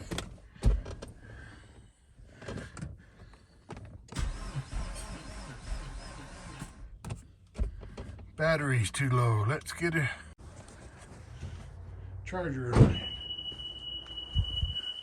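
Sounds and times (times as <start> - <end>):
starter motor whirring: 4.1 - 8.0.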